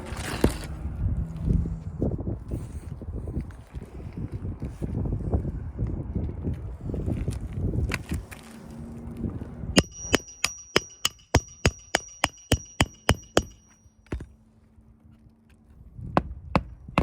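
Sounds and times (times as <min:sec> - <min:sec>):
wind noise on microphone: 0:00.0 - 0:09.8, 0:15.8 - 0:17.0
hammer striking nail: 0:09.8 - 0:14.3.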